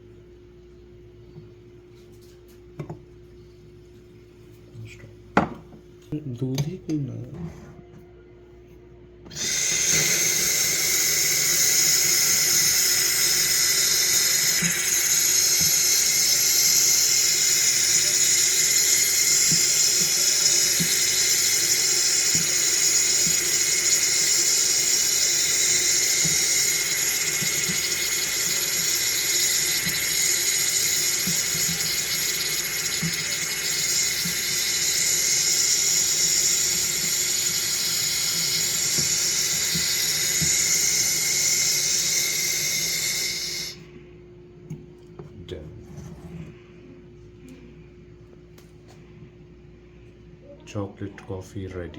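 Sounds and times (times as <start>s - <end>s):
steam wand hissing: 9.3s - 43.8s.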